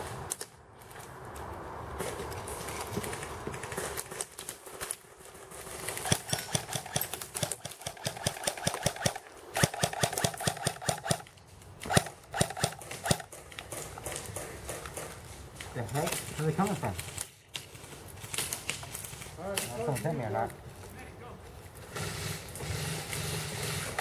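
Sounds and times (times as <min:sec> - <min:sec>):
airsoft guns firing: 0:05.8 - 0:15.1.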